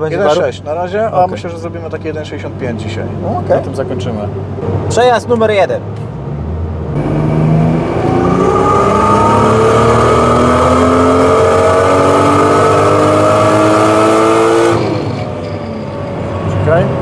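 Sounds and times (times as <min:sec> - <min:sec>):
turbocharged engine revving: 0:06.4 - 0:15.4.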